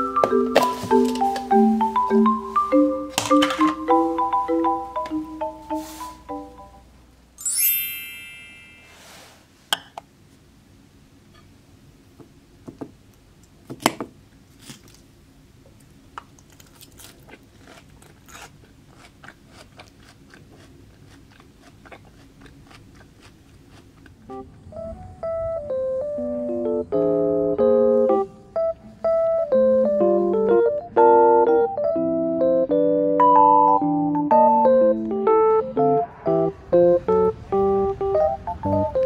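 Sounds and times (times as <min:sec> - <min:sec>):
piano music: 0:00.0 - 0:09.2, 0:24.2 - 0:39.0
bright chime effect: 0:07.4 - 0:09.3
person chewing crunchy salad: 0:14.5 - 0:15.0, 0:16.2 - 0:24.3.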